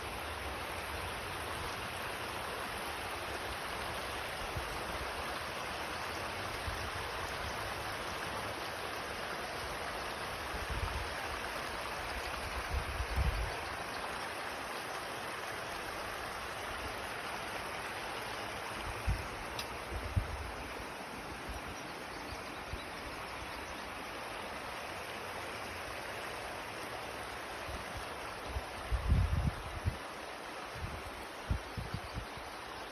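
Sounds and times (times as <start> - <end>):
river water flowing: 0.0 - 32.9
wind buffeting microphone: 28.9 - 30.0.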